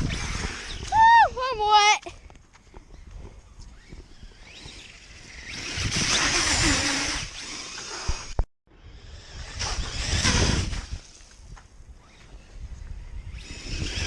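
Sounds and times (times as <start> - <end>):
rc truck splashing through water: 5.2 - 8.1.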